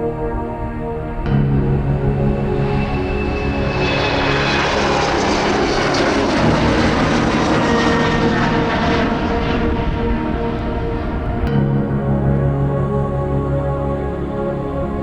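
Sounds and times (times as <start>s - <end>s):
jet engines roaring: 2.3s - 11.5s.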